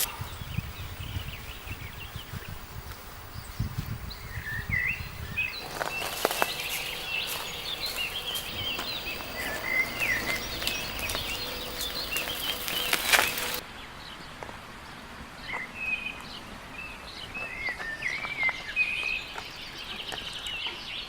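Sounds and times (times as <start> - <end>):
birds chirping: 0.0 - 13.6.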